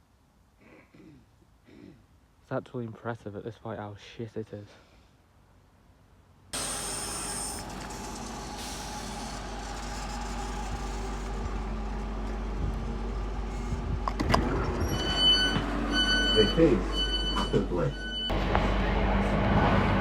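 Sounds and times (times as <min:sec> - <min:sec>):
tram running hum and rumble: 0:06.6 - 0:20.0.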